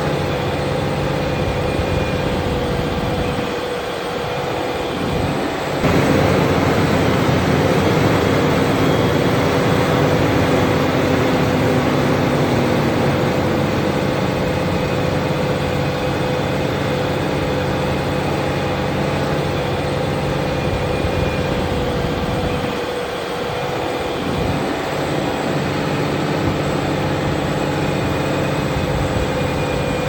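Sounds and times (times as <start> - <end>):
tractor diesel engine drone: 0.0 - 30.0.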